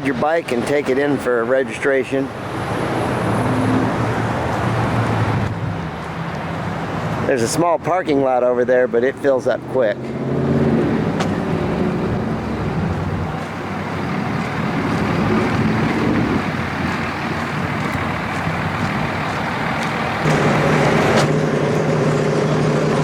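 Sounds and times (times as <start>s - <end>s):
outdoor noise: 0.0s - 23.0s
vehicle engine running: 10.1s - 23.0s.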